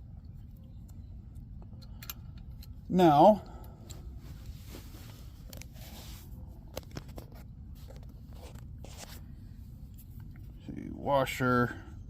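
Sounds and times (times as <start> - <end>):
low steady rumble: 0.0 - 12.0
small metal parts clicking: 0.8 - 2.8.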